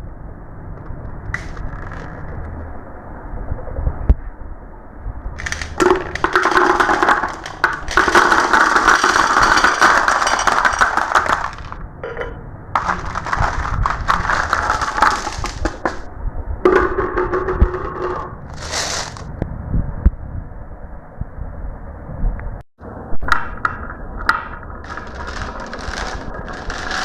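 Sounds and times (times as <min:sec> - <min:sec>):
marbles rattling down marble run: 0:05.4 - 0:11.8, 0:12.8 - 0:16.0, 0:24.8 - 0:27.0.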